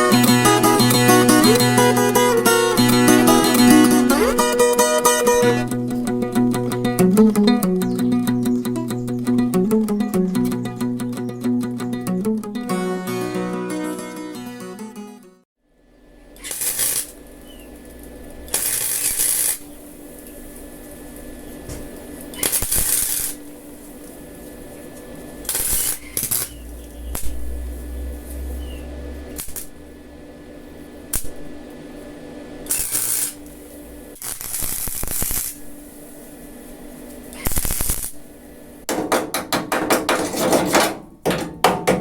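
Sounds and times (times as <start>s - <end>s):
arc welding crackling: 16.3s - 38.9s
low hum: 26.6s - 31.6s.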